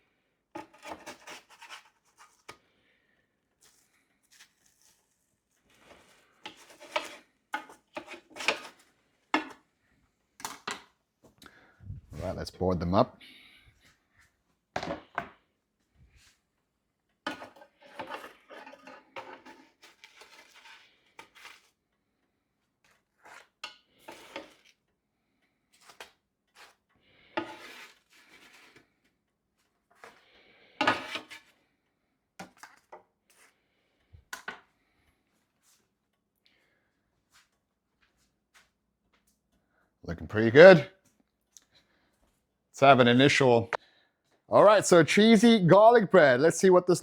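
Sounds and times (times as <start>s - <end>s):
spatula scraping a pan: 0.5s - 2.6s, 3.6s - 9.6s, 17.2s - 21.8s, 22.8s - 24.8s, 25.8s - 29.1s, 29.9s - 31.6s.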